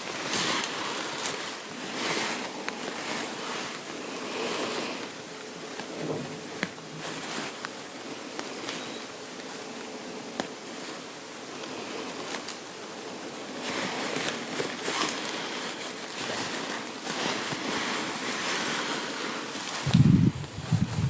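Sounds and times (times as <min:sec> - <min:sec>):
fabric rustling: 0:00.0 - 0:21.0
scratchy strokes on fabric: 0:13.6 - 0:21.0.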